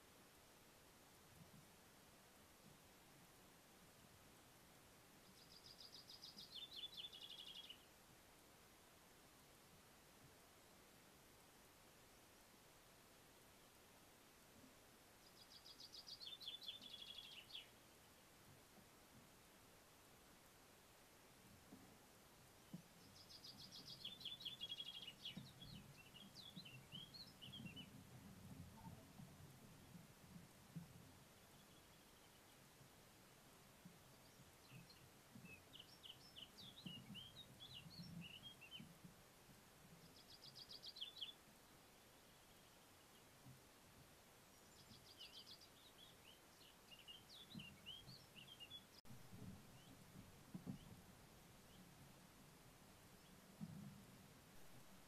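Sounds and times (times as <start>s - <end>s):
woodland background noise: 0.0s - 55.0s
songbird singing: 5.0s - 8.1s, 14.7s - 19.4s, 21.5s - 55.0s
soft low thuds and rustles: 25.2s - 31.5s, 49.1s - 55.0s.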